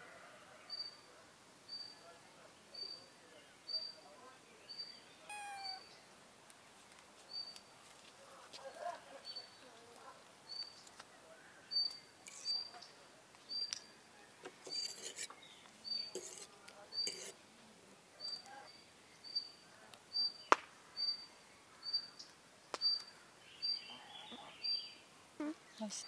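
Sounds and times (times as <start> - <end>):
bird peeping: 4.7 - 6.0
bird higher cry: 5.3 - 6.0.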